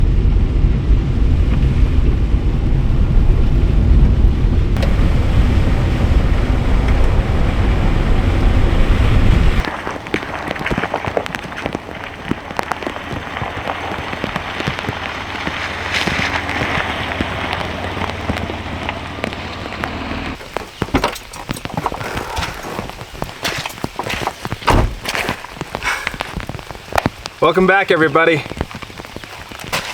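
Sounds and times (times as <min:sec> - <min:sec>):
loud deep rumble: 0:00.0 - 0:20.4
rain falling: 0:00.0 - 0:29.9.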